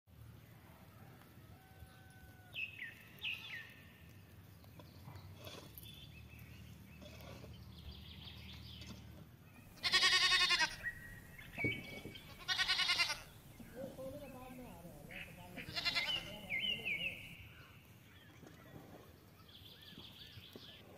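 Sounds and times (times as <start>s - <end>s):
goat or sheep bleating: 9.7s - 11.0s, 12.2s - 13.4s, 15.1s - 17.2s.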